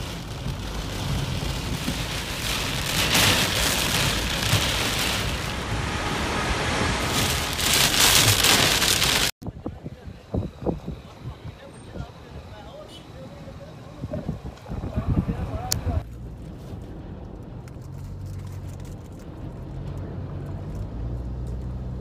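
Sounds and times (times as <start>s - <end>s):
heavy rain on car windshield: 0.0s - 9.4s.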